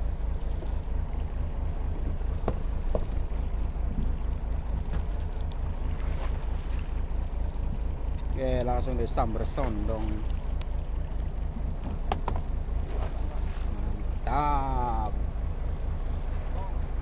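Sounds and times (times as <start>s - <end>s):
boat engine throbbing: 0.0s - 17.0s
sea noise: 0.0s - 17.0s
wind: 0.0s - 17.0s.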